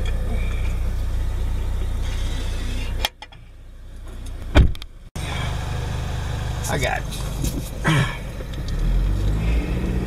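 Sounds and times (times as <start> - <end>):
car engine idling: 0.0 - 10.0
loud thump: 4.5 - 4.8.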